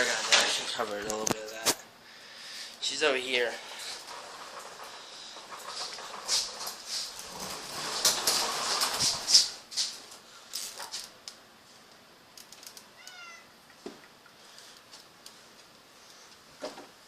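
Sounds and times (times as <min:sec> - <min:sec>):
cat meowing: 0:13.0 - 0:13.5.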